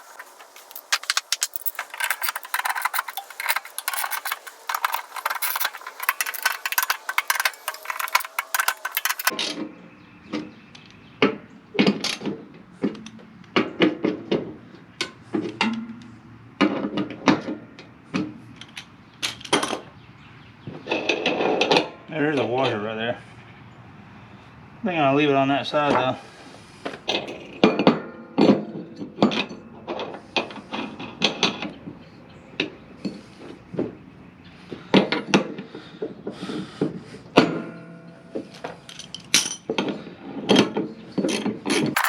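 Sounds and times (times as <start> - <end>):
metal on metal clanks: 0.0 - 9.3
rapid metal tool clicks: 0.0 - 9.3.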